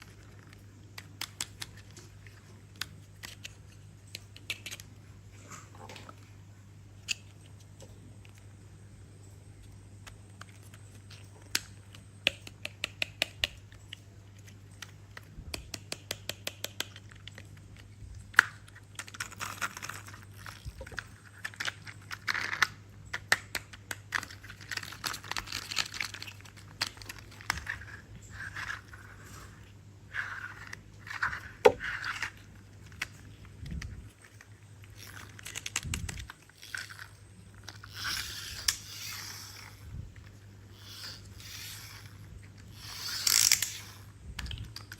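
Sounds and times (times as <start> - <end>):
toy truck clicking: 10.0 - 14.0, 18.4 - 29.2, 34.8 - 39.8, 40.7 - 44.9
plastic crinkling and rustling: 23.9 - 38.7.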